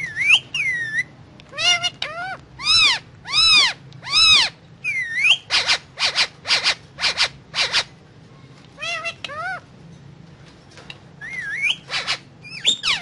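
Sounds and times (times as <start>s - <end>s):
parrot calling: 0.0s - 7.9s, 8.8s - 9.7s, 11.2s - 13.0s
parrot harsh squawks: 0.2s - 7.9s, 11.2s - 13.0s.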